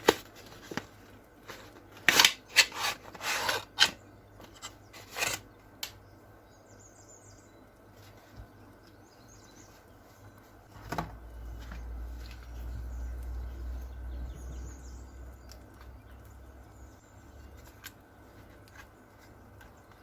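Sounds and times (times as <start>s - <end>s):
objects being handled: 0.0s - 5.5s.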